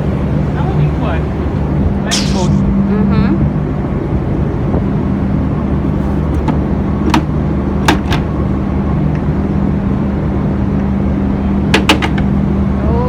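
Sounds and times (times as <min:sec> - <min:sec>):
low machinery hum: 0:00.0 - 0:06.0.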